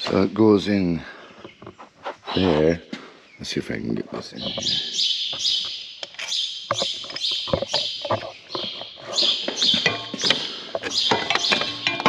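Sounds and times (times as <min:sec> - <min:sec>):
small bird chirping: 0:03.2 - 0:12.0
metal parts and tools clicking: 0:06.0 - 0:12.0.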